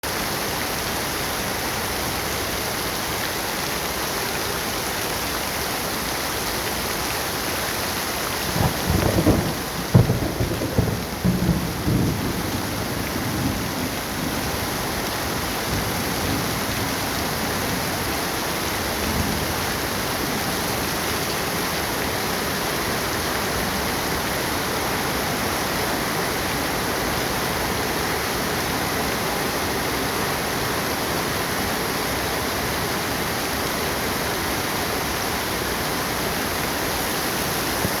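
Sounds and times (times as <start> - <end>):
heavy rain pouring: 0.0 - 38.0
thunder rumble: 8.4 - 14.7.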